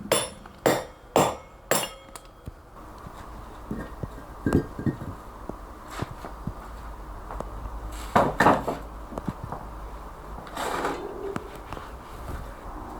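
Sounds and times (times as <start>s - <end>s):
hammer striking chisel on stone: 0.0s - 2.4s.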